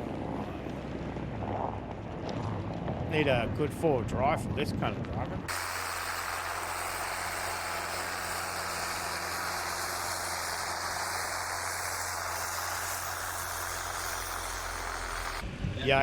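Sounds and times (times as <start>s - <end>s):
low engine hum: 0.0s - 3.7s, 5.0s - 16.0s
vehicle rushing hiss: 5.5s - 15.6s.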